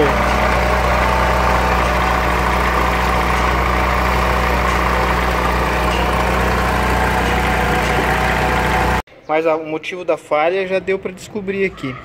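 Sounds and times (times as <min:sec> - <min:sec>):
car engine idling and misfiring: 0:00.0 - 0:09.0.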